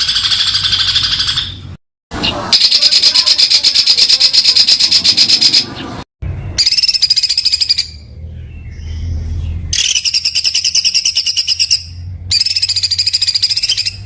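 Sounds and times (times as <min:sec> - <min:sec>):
songbird harsh trilled bursts: 0:02.5 - 0:05.7, 0:06.5 - 0:08.1, 0:09.7 - 0:14.0.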